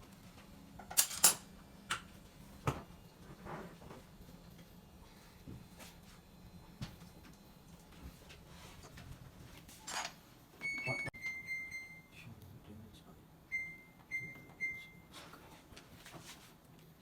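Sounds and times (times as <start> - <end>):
washing machine button beeps: 10.6 - 12.1, 13.5 - 15.1.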